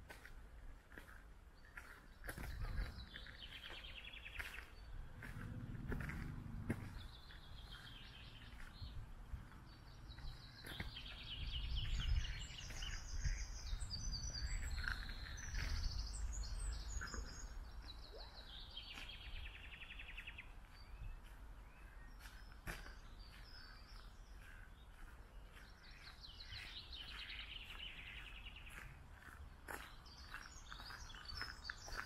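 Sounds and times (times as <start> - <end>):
steady low rumble: 4.8 - 12.4.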